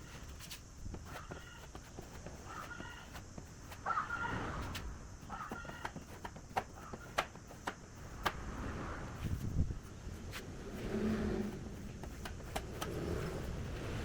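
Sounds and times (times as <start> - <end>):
animal calling: 2.4 - 3.2, 3.8 - 4.7, 5.3 - 6.0.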